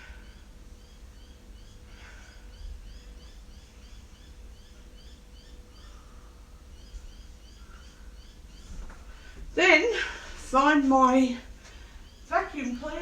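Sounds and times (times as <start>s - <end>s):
bird chirping: 0.0s - 9.4s, 10.6s - 13.0s
low background rumble: 0.0s - 13.0s.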